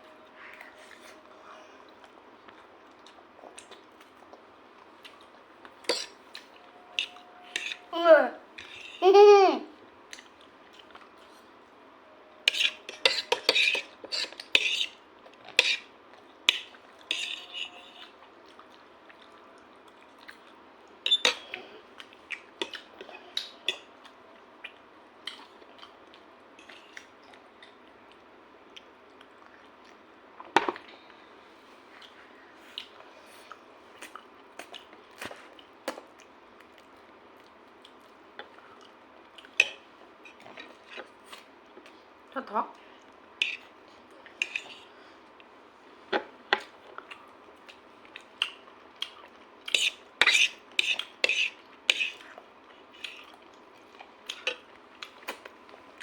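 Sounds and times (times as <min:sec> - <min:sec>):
cutlery clinking on a dish: 0:05.8 - 0:06.2, 0:12.5 - 0:14.9, 0:16.5 - 0:18.0.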